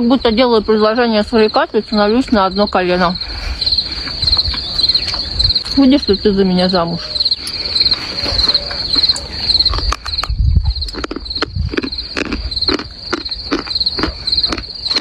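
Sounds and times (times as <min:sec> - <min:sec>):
cricket chirping: 0:00.0 - 0:15.0
animal chewing with crunches: 0:07.0 - 0:15.0.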